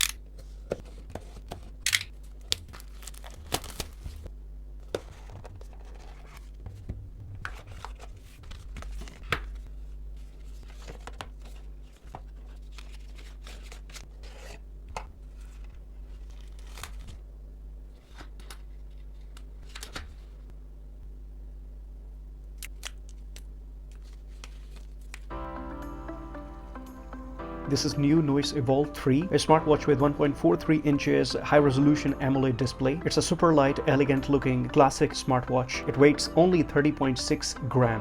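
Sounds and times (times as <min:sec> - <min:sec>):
steady low hum: 0:00.0 - 0:38.0
wrapping tearing and crinkling: 0:01.8 - 0:04.3, 0:15.2 - 0:17.2.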